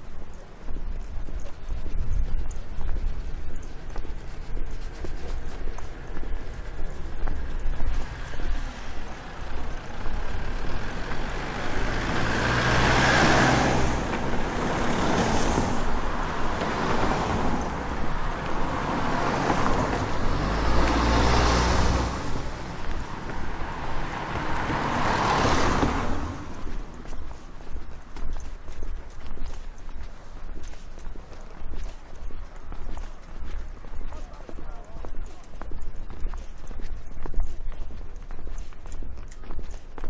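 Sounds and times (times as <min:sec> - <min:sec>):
deep engine rumble: 0:00.0 - 0:28.7
vehicles passing: 0:00.0 - 0:40.0.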